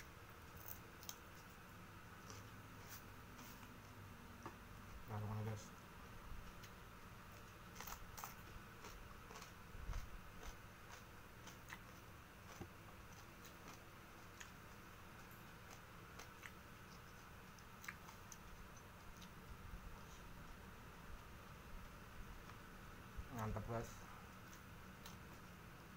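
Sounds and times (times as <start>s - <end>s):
chewing crunches and mouth clicks: 0.4s - 1.6s, 6.4s - 20.6s, 24.3s - 25.6s.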